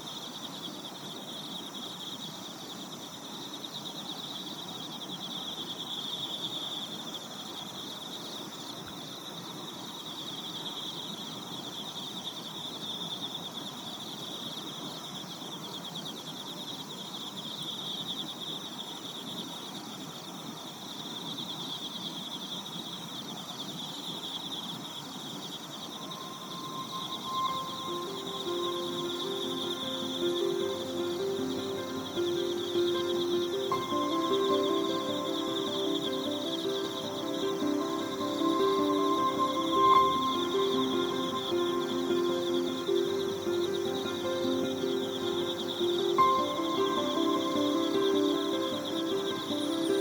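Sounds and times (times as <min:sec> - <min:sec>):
low marsh hiss: 0:00.0 - 0:50.0
night insects trilling: 0:00.0 - 0:50.0
soft music tones: 0:25.8 - 0:50.0.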